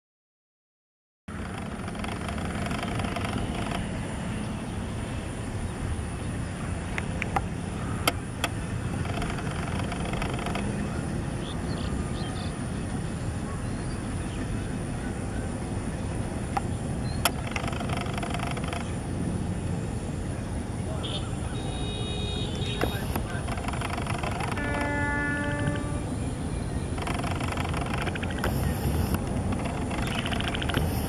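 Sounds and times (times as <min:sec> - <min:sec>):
sharp clicks: 0:01.4 - 0:04.0, 0:06.9 - 0:10.8, 0:16.5 - 0:19.0, 0:22.6 - 0:25.0, 0:27.0 - 0:31.0
faint voices: 0:06.2 - 0:19.0, 0:19.9 - 0:31.0
distant train rumbling: 0:22.8 - 0:31.0.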